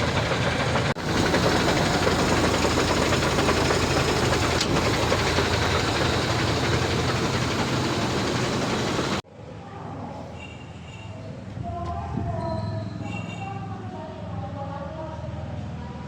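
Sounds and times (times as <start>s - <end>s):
heavy truck engine running: 0.0s - 9.2s.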